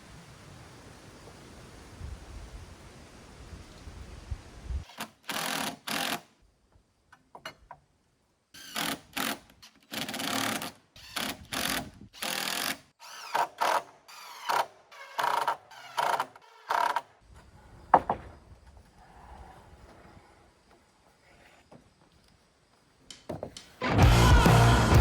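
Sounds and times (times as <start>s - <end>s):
power driver running screws: 4.9s - 6.3s, 8.6s - 17.0s.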